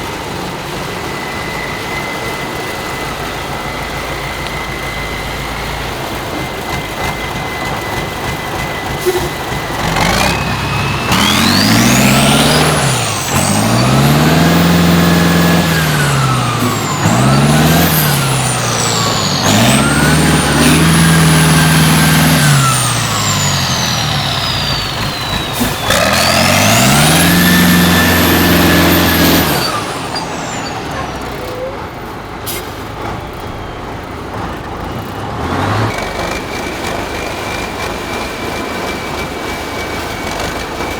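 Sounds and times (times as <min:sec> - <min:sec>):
high whine: 0:00.0 - 0:32.1
diesel truck engine revving: 0:00.0 - 0:40.9.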